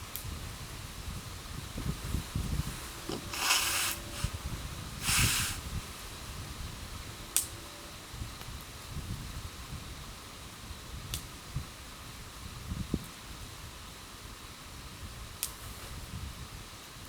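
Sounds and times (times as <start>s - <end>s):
campfire burning: 0.0s - 12.2s
fire hissing: 0.7s - 7.6s.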